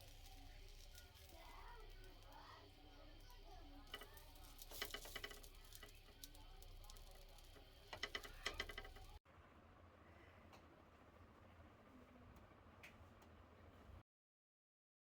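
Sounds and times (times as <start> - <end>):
rapid small clicks: 0.0 - 9.2
faint room noise: 0.0 - 14.0.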